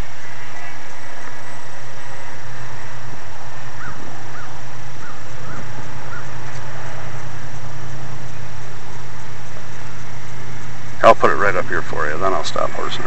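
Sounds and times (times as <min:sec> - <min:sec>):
low background hum: 0:00.0 - 0:13.0
crow cawing: 0:03.8 - 0:06.4.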